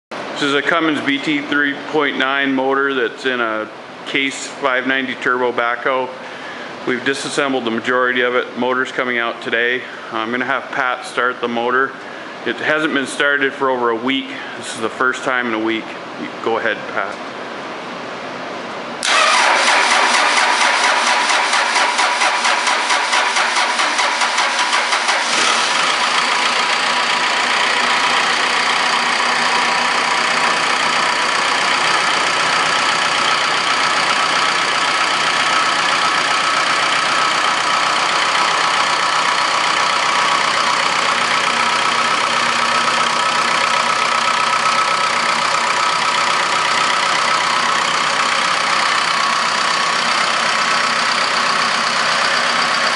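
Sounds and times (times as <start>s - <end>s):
diesel engine idling: 0.1s - 11.4s, 19.0s - 52.9s
diesel engine cranking: 19.0s - 52.9s.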